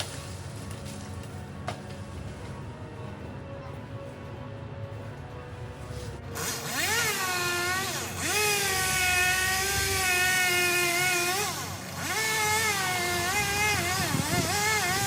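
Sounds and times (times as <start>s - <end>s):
chainsaw engine revving: 6.4s - 15.0s.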